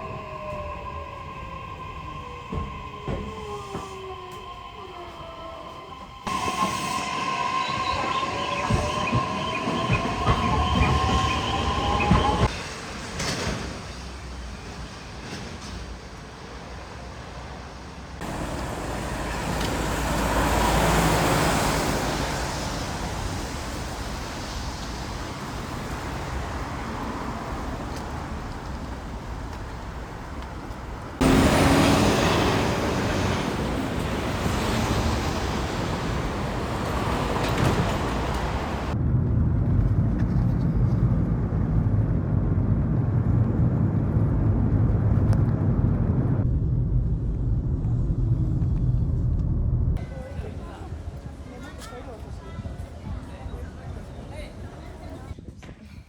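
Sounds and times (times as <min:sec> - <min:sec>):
traffic rumble: 0:15.8 - 0:55.4.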